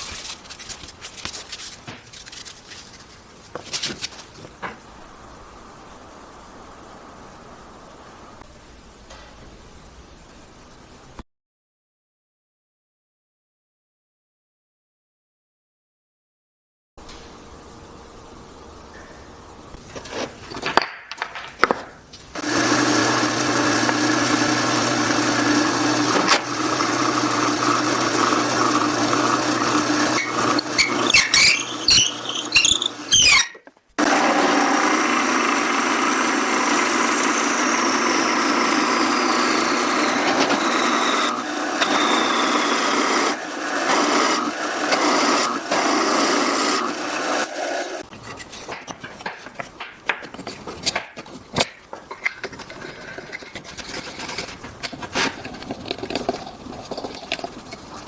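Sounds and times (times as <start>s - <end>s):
power tool working wood: 22.4s - 58.0s.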